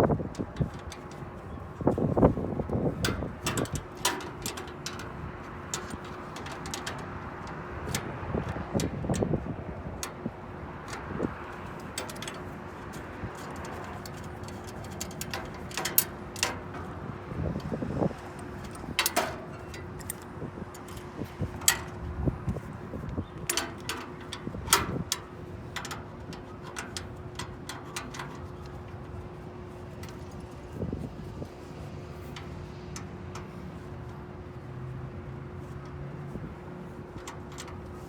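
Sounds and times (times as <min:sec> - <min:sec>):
metallic clicks and clanks: 0:00.2 - 0:22.7, 0:23.4 - 0:28.9.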